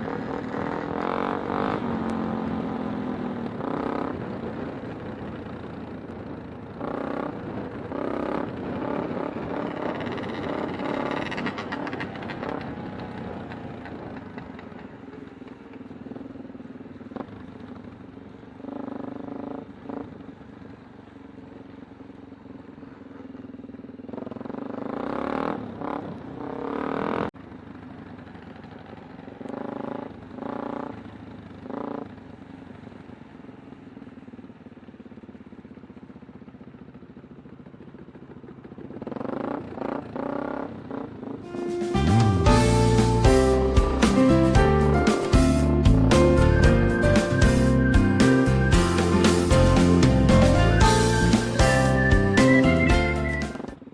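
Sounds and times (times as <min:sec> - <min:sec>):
motorcycle engine revving: 0:00.0 - 0:20.8, 0:21.4 - 0:53.9.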